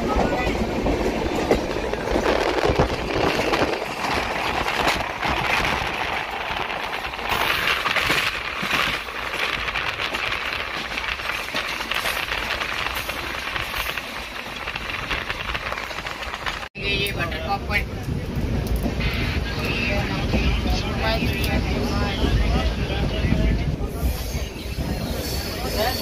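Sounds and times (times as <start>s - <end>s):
train wheels rushing on rail: 0.0s - 26.0s
crackle and rattle: 1.4s - 16.7s.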